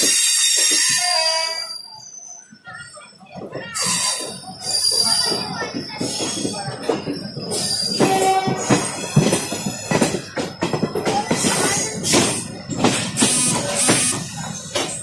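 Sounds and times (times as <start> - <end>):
train wheels clattering over track: 0.0 - 1.6, 2.5 - 15.0
knocks and rattling: 3.4 - 15.0.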